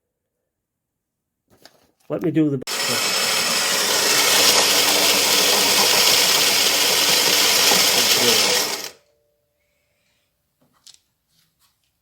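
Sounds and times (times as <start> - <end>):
espresso machine running: 2.7 - 9.0.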